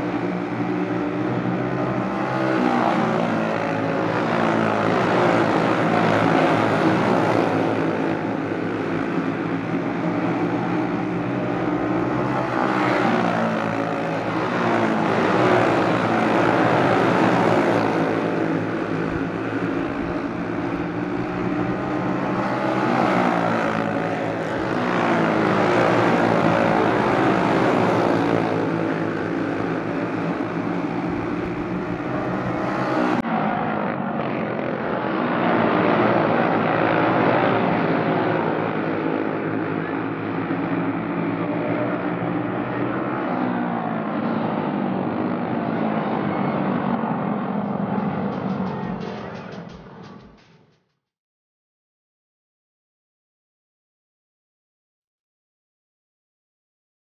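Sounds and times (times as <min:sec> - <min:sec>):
racing kart engines passing: 0:00.0 - 0:33.4, 0:34.9 - 0:50.5.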